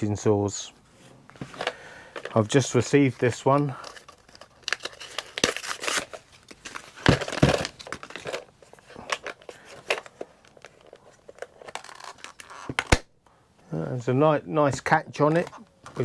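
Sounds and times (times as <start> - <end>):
packaging crinkling and rustling: 1.3 - 13.0.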